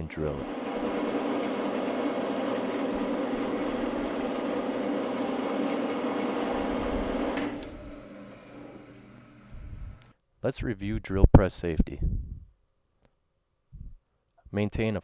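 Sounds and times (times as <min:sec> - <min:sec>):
drill grinding through metal: 0:00.0 - 0:09.6
drill press motor hum: 0:00.0 - 0:10.1.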